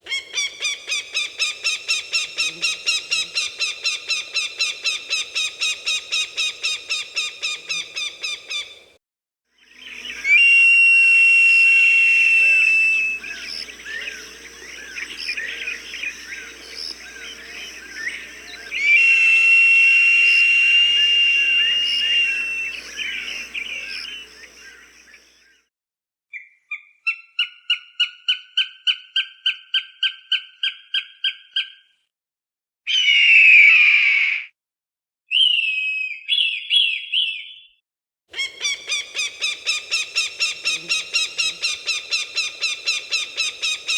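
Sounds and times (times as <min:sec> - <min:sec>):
falcon cackling calls: 0:17.3 - 0:24.4, 0:38.4 - 0:43.9
falcon screams: 0:18.0 - 0:24.3.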